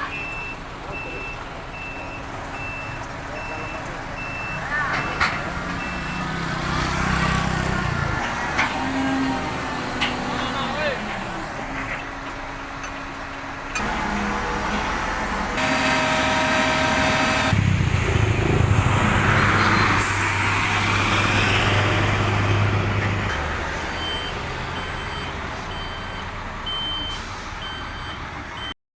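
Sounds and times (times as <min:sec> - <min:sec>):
heavy diesel engines running: 0:00.0 - 0:28.8
reversing alarm beeping: 0:00.1 - 0:06.4, 0:13.8 - 0:20.2, 0:23.6 - 0:28.8.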